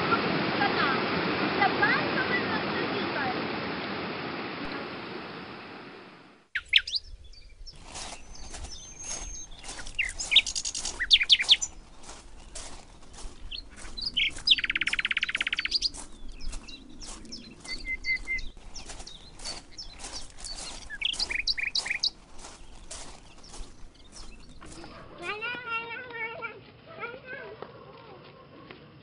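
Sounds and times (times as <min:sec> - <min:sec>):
songbirds chirping: 0:06.0 - 0:26.2
whistled bird notes: 0:06.6 - 0:07.5, 0:08.2 - 0:11.7, 0:13.5 - 0:22.2
bird trill: 0:06.6 - 0:25.0.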